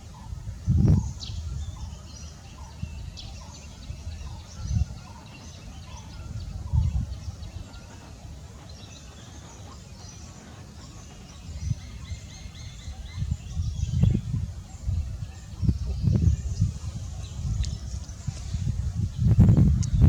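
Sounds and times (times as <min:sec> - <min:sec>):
low rumbles on microphone: 0:00.0 - 0:01.9, 0:06.1 - 0:07.7, 0:11.3 - 0:20.0
small birds chirping: 0:00.0 - 0:20.0.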